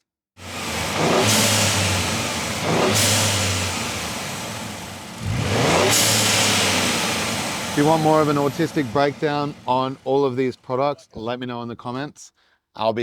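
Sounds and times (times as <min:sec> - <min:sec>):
engine revving: 0:00.4 - 0:10.7.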